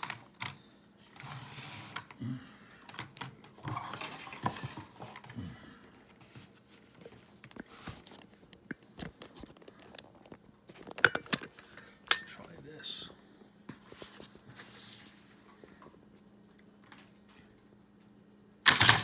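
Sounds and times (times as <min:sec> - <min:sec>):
plastic track pieces clattering: 0:18.7 - 0:19.0.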